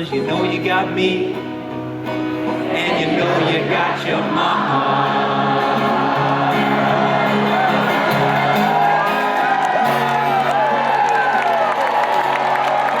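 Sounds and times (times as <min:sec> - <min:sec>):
live band playing sustained chords: 0:00.0 - 0:13.0
audience whooping: 0:04.5 - 0:13.0.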